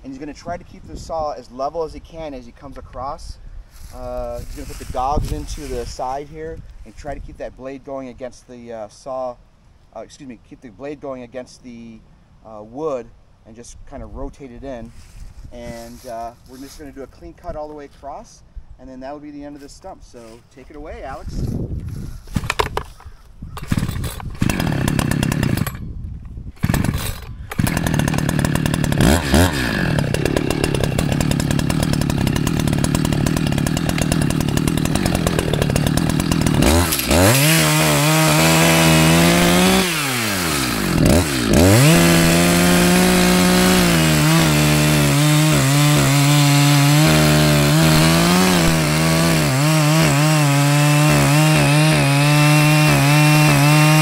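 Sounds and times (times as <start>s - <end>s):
chainsaw cutting a tree stump: 22.3s - 25.9s, 26.5s - 54.0s.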